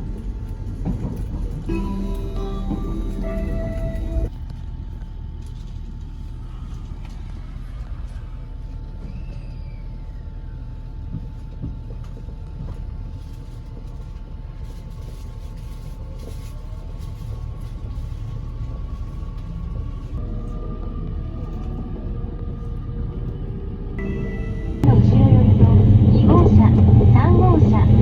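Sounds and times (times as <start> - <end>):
train running rumble: 0.0 - 28.0
faint falling whistle: 9.0 - 10.2.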